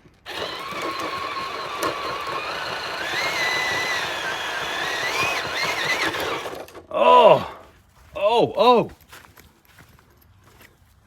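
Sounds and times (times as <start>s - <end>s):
electric motor whining: 0.3s - 6.8s.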